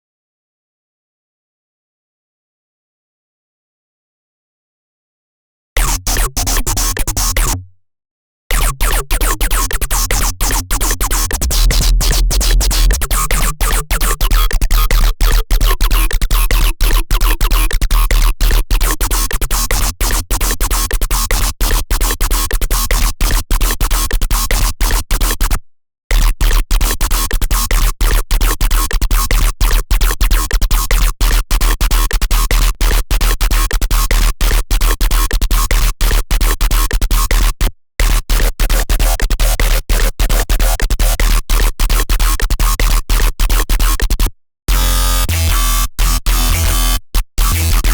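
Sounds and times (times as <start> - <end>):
heavy bass: 9.6 - 15.4, 44.7 - 46.9
harsh stuttering synthesizer: 10.7 - 14.5.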